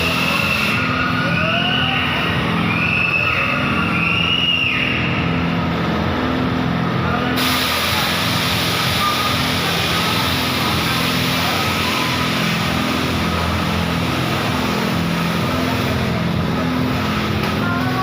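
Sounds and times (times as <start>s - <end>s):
aircraft engines droning: 0.0s - 18.0s
air rushing in cabin: 5.3s - 17.8s.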